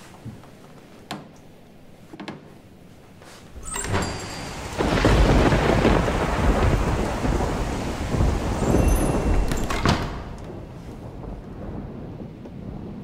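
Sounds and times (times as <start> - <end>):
thunder rumbling: 3.5 - 13.0
sharp thunder crack: 4.0 - 13.0.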